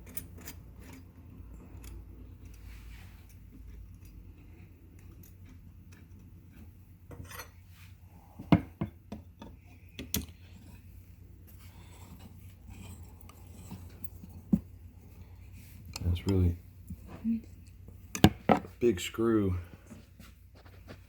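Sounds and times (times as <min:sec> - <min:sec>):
metal parts and tool clinking: 0:00.0 - 0:04.2.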